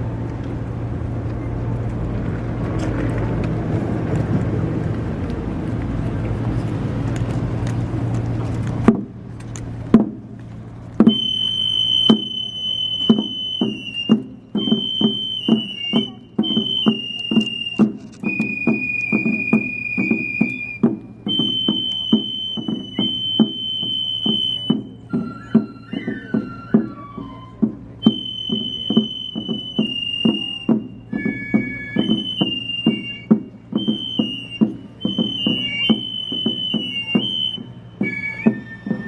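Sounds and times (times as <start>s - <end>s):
piercing high melody: 11.1s - 39.0s.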